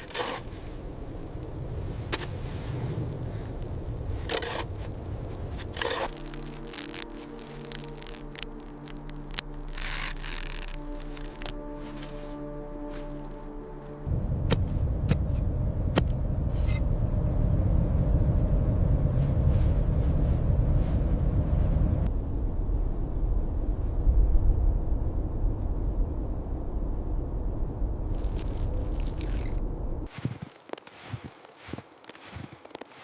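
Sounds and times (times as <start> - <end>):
wind buffeting microphone: 14.0 - 32.6.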